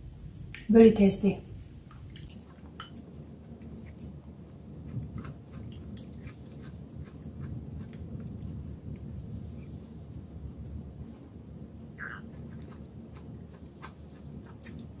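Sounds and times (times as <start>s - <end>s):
steady low hum: 0.0s - 15.0s
person chewing soup: 4.8s - 10.0s, 12.2s - 15.0s.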